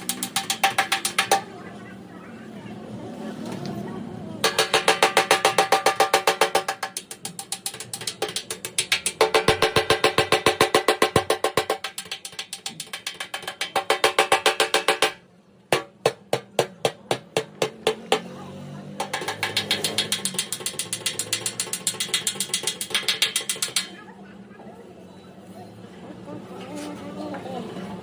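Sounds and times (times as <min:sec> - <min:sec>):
hammer tapping sheet metal: 0:00.0 - 0:01.6, 0:04.4 - 0:18.4, 0:19.0 - 0:24.0.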